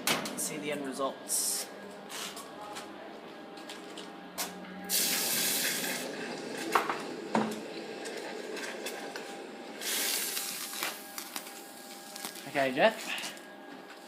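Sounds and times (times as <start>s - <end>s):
hot metal hissing in water: 4.9s - 6.2s, 9.8s - 11.2s.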